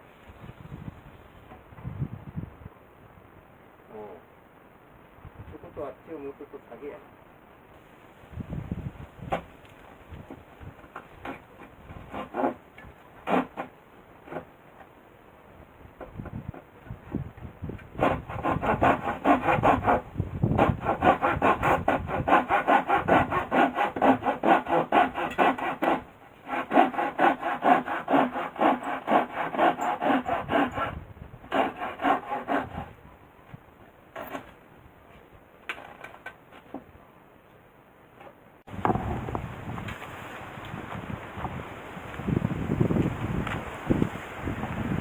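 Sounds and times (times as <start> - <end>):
handsaw cutting wood: 12.0 - 12.6, 13.2 - 14.5, 18.0 - 32.9.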